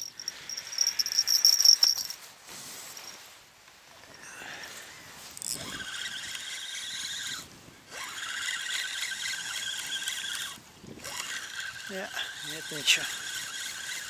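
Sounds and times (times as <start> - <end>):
fishing reel whirring: 0.0 - 2.2, 5.4 - 14.0.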